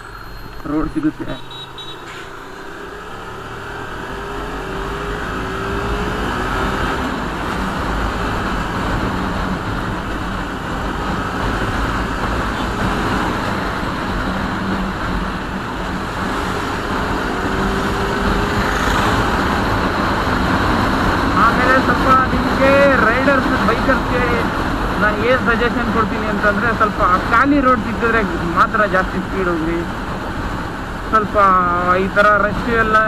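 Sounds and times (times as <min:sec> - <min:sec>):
motorcycle engine running: 0:00.0 - 0:25.0
wind and road noise rushing: 0:00.0 - 0:33.0.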